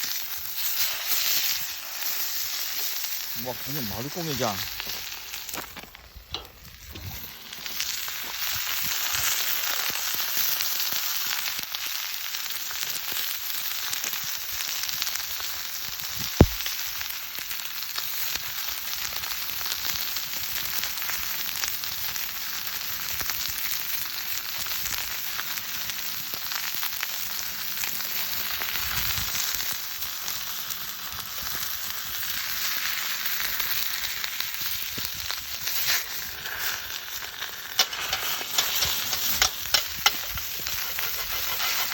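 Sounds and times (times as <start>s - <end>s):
chicken sizzling in a frying pan: 0.0s - 41.9s
sharp tap: 16.4s - 16.6s.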